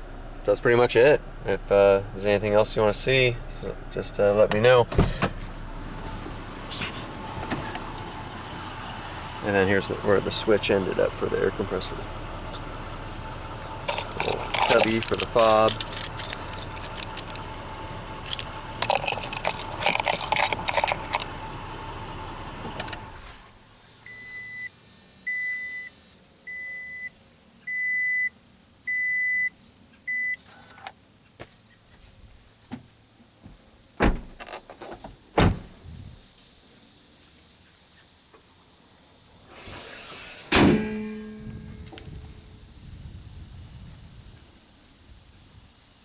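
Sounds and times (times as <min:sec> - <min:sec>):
rattling and clattering in truck cab: 0:01.7 - 0:08.7, 0:09.3 - 0:23.5, 0:32.8 - 0:36.2, 0:40.4 - 0:42.8
vehicle warning chime beeping: 0:24.0 - 0:24.7, 0:25.3 - 0:27.1, 0:27.7 - 0:28.3, 0:28.9 - 0:29.5, 0:30.1 - 0:30.4
loud thump with ringing tail: 0:40.5 - 0:41.9.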